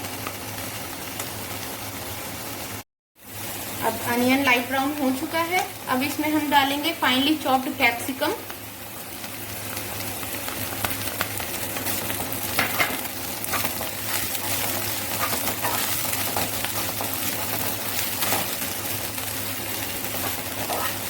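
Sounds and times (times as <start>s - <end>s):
vegetables sizzling in hot oil: 0.0s - 21.0s
spatula scraping a pan: 12.6s - 18.6s, 20.2s - 21.0s.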